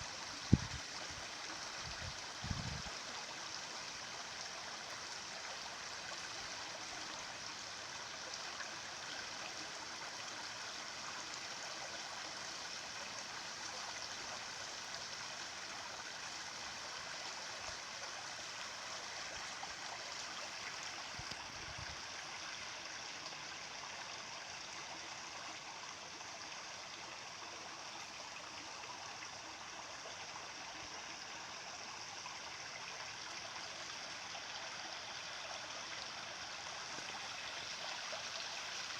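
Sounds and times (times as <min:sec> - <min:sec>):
stream water rushing and gurgling: 0:00.0 - 0:38.9.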